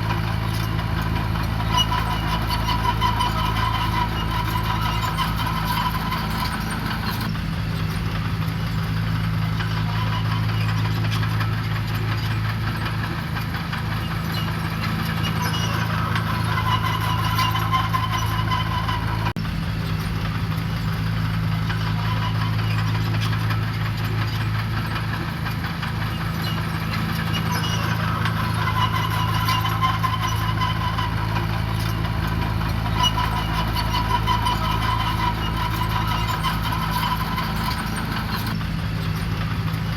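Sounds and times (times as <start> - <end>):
heavy machinery diesel engine running: 0.0 - 39.9.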